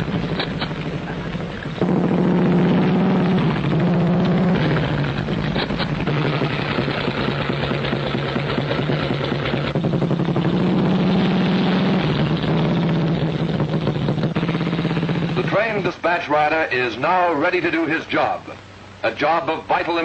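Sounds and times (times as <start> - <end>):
motorcycle engine running: 0.0 - 16.5.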